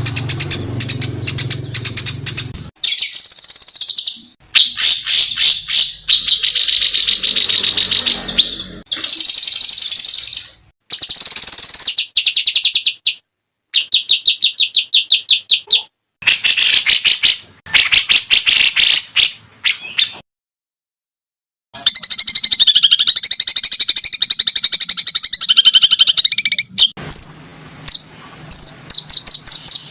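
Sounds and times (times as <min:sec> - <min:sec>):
songbird trills and chattering: 0:00.0 - 0:13.1.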